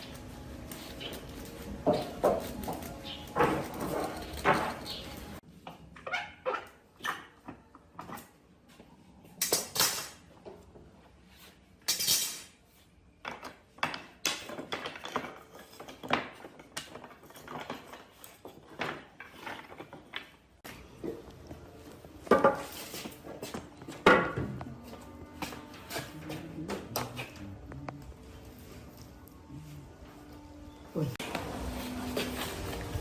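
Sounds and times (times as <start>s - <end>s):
hard objects clinking and knocking: 13.2s - 20.5s.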